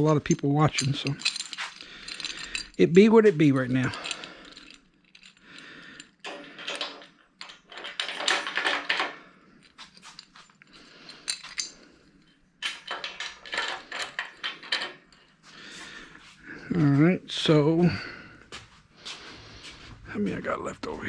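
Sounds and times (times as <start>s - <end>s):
metal brackets clinking: 0.0s - 15.5s.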